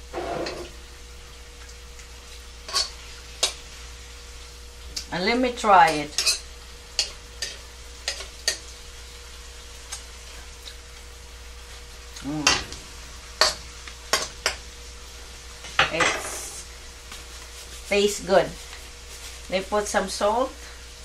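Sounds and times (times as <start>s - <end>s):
utensil scraping a pan: 0.0s - 0.8s
beef sizzling in a wok: 0.0s - 21.0s.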